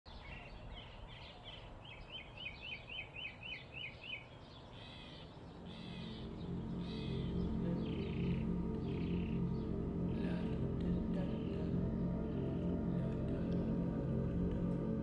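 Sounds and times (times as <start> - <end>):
low background noise: 0.1 - 15.0
bird chirping rapidly: 1.9 - 9.8
soft music: 4.8 - 15.0.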